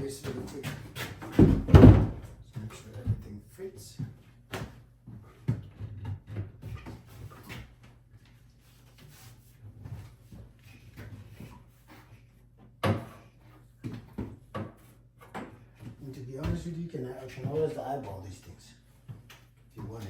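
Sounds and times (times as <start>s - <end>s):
wooden cabinet knocking and scraping: 0.2s - 2.4s.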